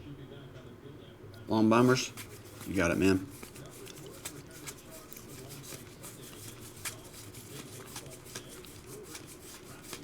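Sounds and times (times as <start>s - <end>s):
trading cards rubbing: 1.7s - 10.0s
cards clicking: 3.4s - 10.0s.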